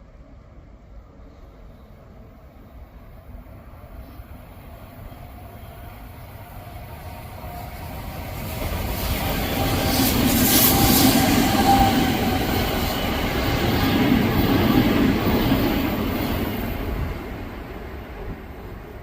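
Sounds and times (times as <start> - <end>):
electric train passing: 0.0 - 19.0.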